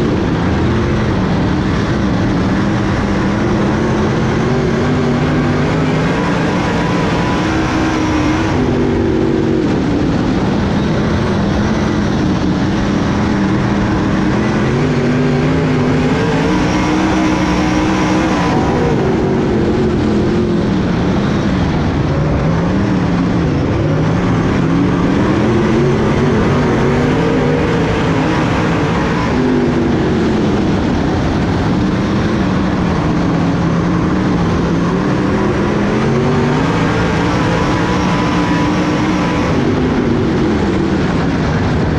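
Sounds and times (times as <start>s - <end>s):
race car engine: 0.0s - 41.9s.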